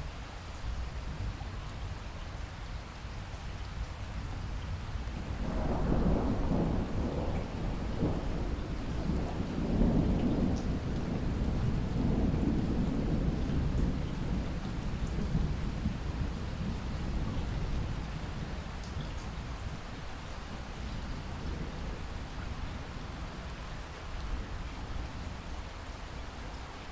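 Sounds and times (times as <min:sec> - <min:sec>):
steady rain: 0:00.0 - 0:26.9
thunder rolling: 0:05.4 - 0:17.9.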